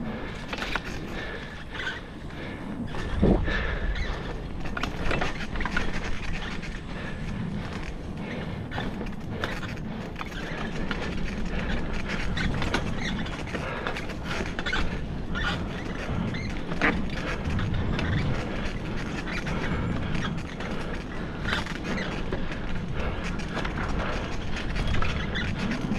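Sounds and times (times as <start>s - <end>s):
bicycle tyre rumble on trail: 0.0s - 25.9s
bike rattling clicks: 0.0s - 25.9s.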